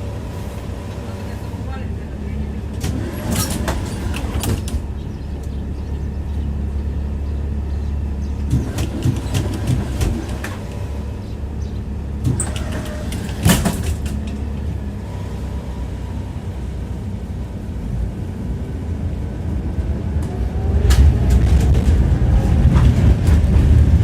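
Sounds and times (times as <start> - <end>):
wheels clattering over rail joints: 0.0 - 16.0, 20.2 - 24.0
tram rumbling on rails: 0.0 - 24.0.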